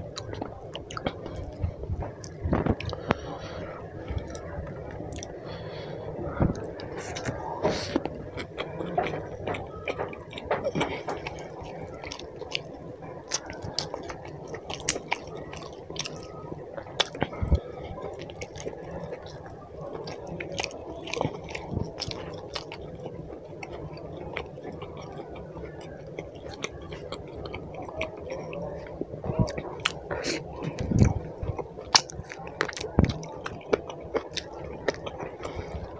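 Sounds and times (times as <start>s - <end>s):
man chewing food: 0.0s - 35.9s.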